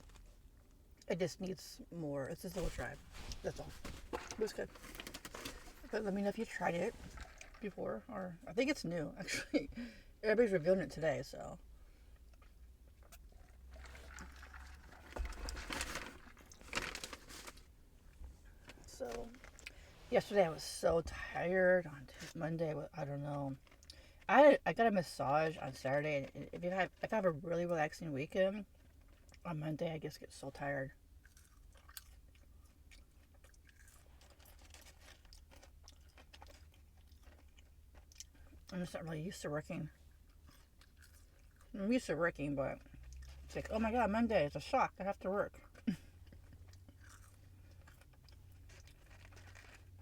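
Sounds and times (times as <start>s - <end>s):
soft crunches: 2.4s - 7.7s, 46.4s - 50.0s
chewing with mouth clicks: 31.2s - 38.7s, 40.1s - 41.7s, 45.6s - 50.0s.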